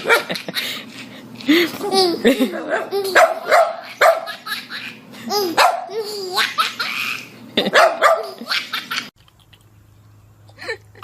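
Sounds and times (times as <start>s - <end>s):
baby laughing: 1.5s - 9.1s
dog barking: 3.2s - 4.3s, 5.6s - 5.9s, 7.7s - 8.4s.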